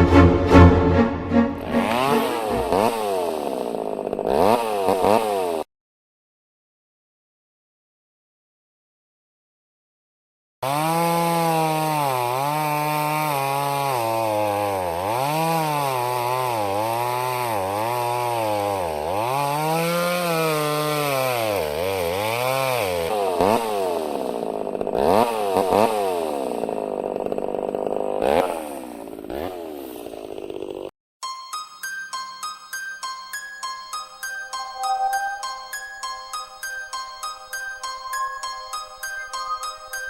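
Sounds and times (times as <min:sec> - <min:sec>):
chainsaw engine revving: 0:01.6 - 0:05.7, 0:10.6 - 0:30.9.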